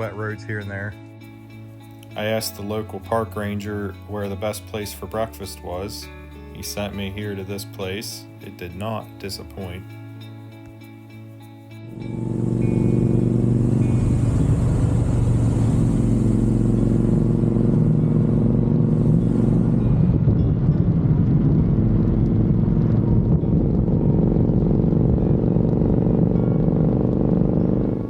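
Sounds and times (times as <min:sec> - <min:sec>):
motorcycle engine running: 0:11.9 - 0:28.0.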